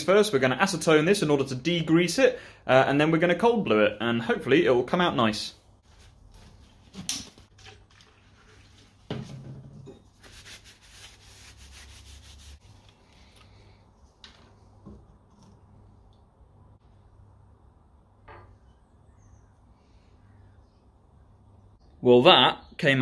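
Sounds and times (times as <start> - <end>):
paper towel wiping metal: 10.1 - 12.9.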